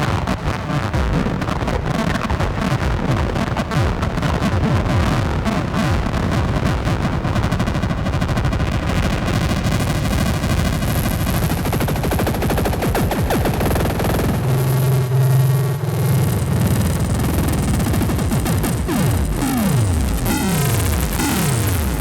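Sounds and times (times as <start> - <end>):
harsh synthesizer drone: 1.0 - 22.0
low steady synth tone: 12.3 - 22.0.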